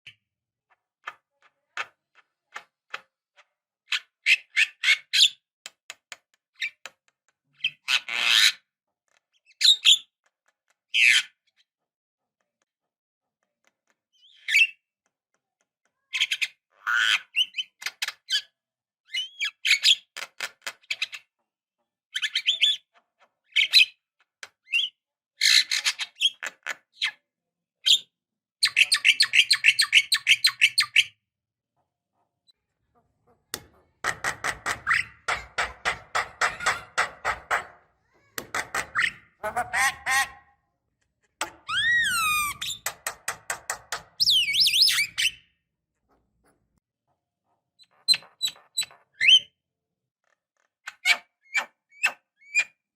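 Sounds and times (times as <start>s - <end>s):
bird singing with whistles and clicks: 44.2s - 45.5s.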